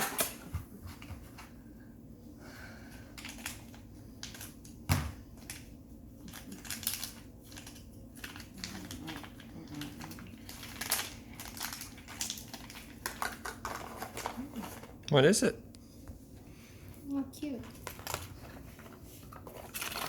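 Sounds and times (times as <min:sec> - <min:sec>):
packaging rustling and crinkling: 0:03.2 - 0:04.6, 0:05.4 - 0:15.0, 0:17.6 - 0:20.0.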